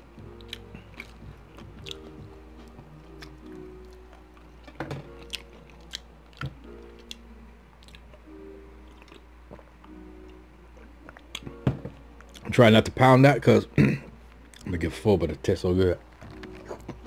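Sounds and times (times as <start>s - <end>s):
chewing food: 0.2s - 11.6s, 12.2s - 12.6s, 14.3s - 14.7s, 16.0s - 17.0s.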